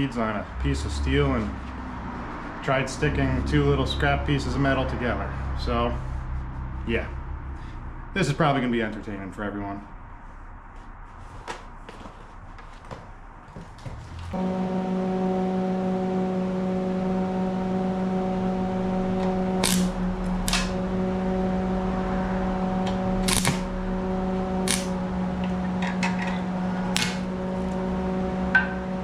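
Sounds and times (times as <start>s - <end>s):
welding machine humming: 14.4s - 29.0s
welding arc crackles: 19.2s - 20.8s, 22.8s - 25.5s, 26.9s - 27.9s.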